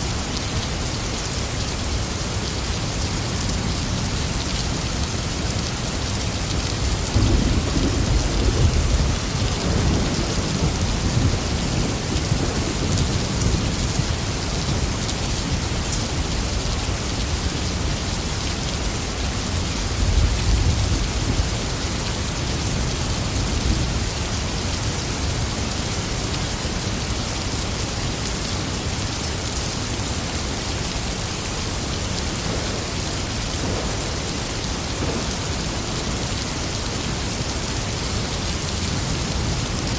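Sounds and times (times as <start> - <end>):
heavy rain: 0.0 - 39.9
thunder rumbling: 7.1 - 14.1, 32.2 - 36.3.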